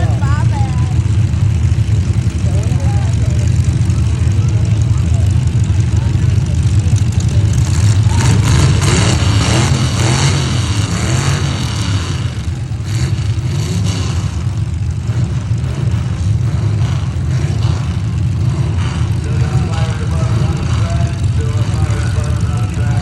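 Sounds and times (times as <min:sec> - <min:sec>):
truck engines revving: 0:00.0 - 0:23.0.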